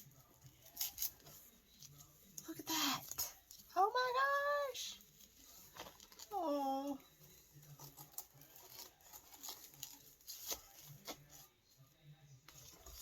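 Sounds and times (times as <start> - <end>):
paper rustling and crinkling: 5.0 - 6.4, 7.2 - 11.5, 12.5 - 13.0.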